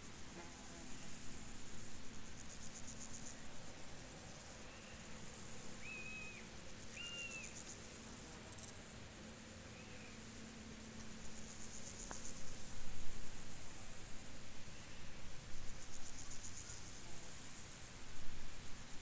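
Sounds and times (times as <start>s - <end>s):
crickets trilling: 0.6s - 8.8s
whistled bird notes: 5.8s - 7.5s.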